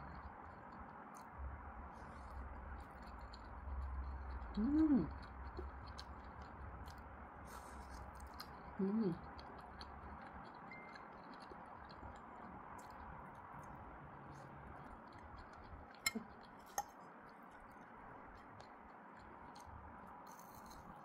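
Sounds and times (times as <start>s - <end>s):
person humming: 4.6s - 5.1s, 8.8s - 9.2s.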